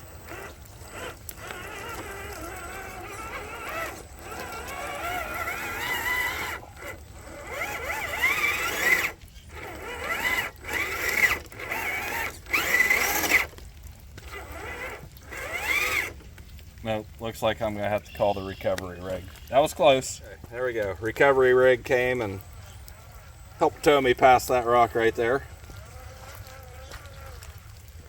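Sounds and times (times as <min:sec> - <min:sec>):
electric motor whining: 0:00.0 - 0:16.3, 0:22.6 - 0:27.7.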